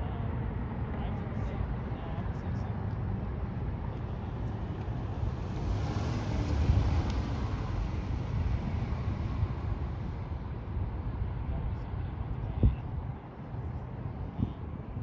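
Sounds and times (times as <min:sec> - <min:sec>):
steady low rumble: 0:02.0 - 0:13.1
vehicle passing by: 0:03.3 - 0:10.7.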